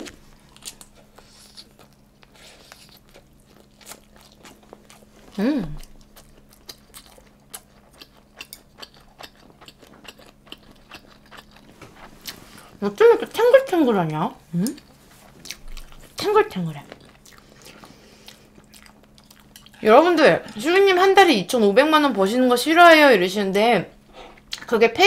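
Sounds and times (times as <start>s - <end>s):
wet chewing: 0.0s - 12.8s, 14.6s - 19.8s.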